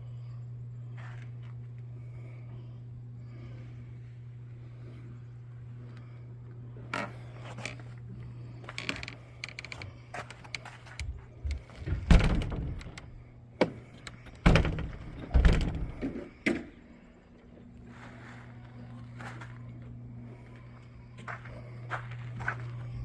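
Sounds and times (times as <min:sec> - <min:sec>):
steady low hum: 0:00.0 - 0:23.0
knocks and thuds: 0:11.4 - 0:13.0, 0:14.4 - 0:16.7.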